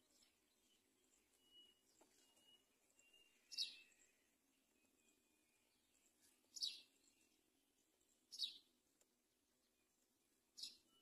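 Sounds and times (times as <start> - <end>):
bird calling: 1.2 - 4.2.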